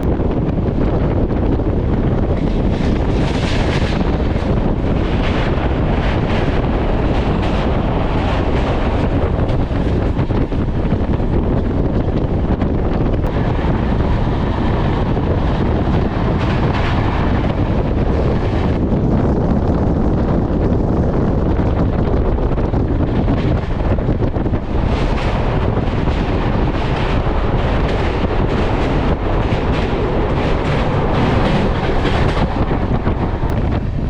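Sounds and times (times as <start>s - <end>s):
train rumbling: 0.0s - 34.0s
wind buffeting microphone: 0.0s - 34.0s.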